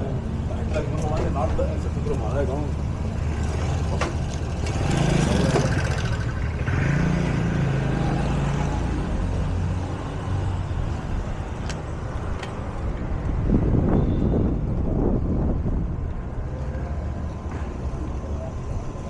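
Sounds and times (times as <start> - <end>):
street traffic: 0.0 - 19.0
car engine running: 0.6 - 7.9.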